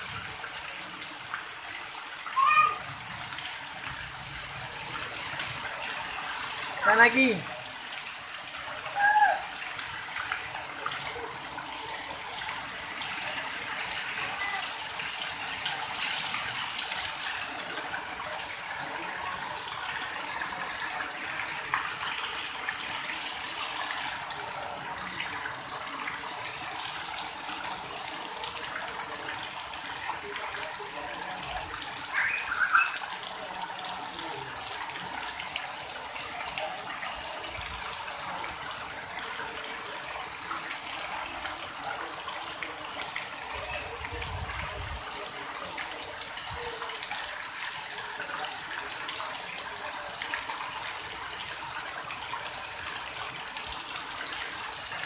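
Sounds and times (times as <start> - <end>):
heavy rain on pavement: 0.0 - 55.0
water pouring from roof: 0.0 - 55.0
short high voice: 2.4 - 2.9, 9.0 - 9.5.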